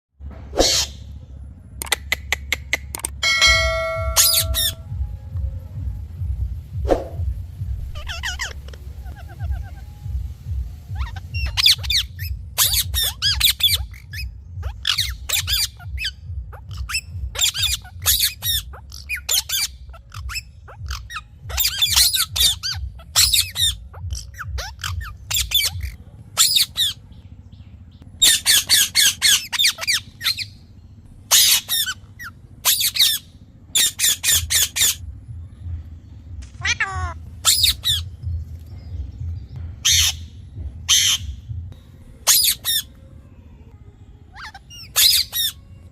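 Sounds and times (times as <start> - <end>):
steady low hum: 0.2 - 45.9
parrots squawking: 3.0 - 4.9, 7.8 - 10.1, 10.8 - 27.1, 28.1 - 30.6, 31.3 - 35.0, 36.4 - 38.3, 39.8 - 41.5, 42.2 - 43.0, 44.3 - 45.7.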